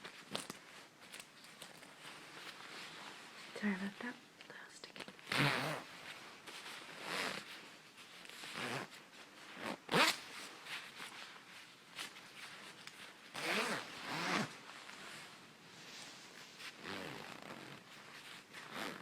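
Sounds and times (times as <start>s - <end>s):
coat zipper sliding: 5.2s - 11.1s, 12.0s - 19.0s.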